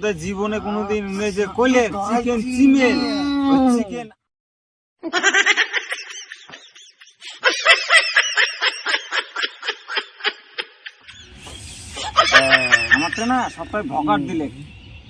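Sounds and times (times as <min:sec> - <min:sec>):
rhythmic laughter: 0:05.0 - 0:13.7.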